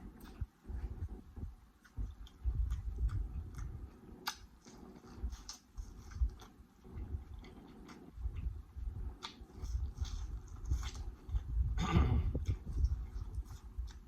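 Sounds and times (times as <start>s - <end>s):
chewing and biting food: 0.0s - 14.0s
wet mouth clicks and lip smacks: 1.8s - 5.6s.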